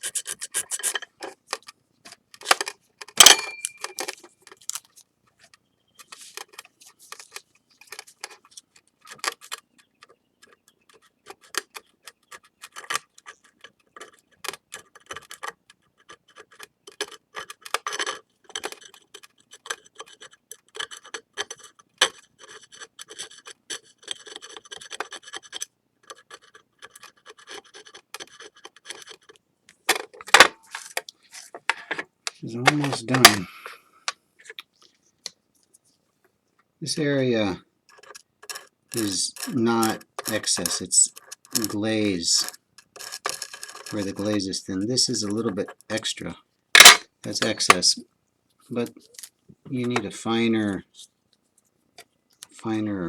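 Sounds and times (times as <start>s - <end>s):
sandpaper rubbing on ceramic: 0.0s - 1.0s
light clicks and scratches: 0.0s - 36.7s, 37.9s - 52.6s
sharp knock with ring: 3.2s - 3.8s.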